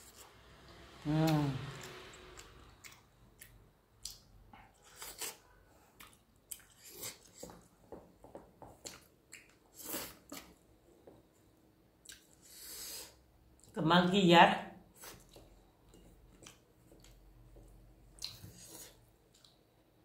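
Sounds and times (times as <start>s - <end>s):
chewing with soft mouth clicks: 1.7s - 7.7s, 8.7s - 11.2s, 12.0s - 12.6s, 15.0s - 19.9s.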